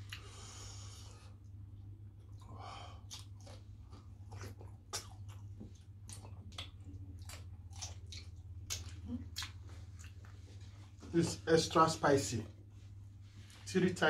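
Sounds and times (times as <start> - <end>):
wet chewing and lip-smacking: 0.0 - 0.3, 1.3 - 10.9
steady low hum: 0.0 - 14.0.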